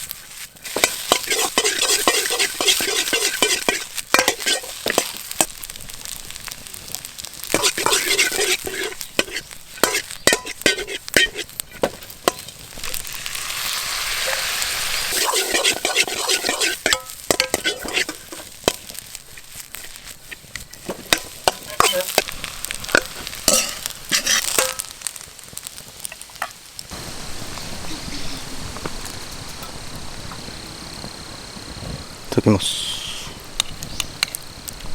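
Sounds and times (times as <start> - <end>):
food sizzling in a pan: 0.0 - 34.9
spatula clacking and scraping pan: 0.6 - 5.6, 7.4 - 25.0.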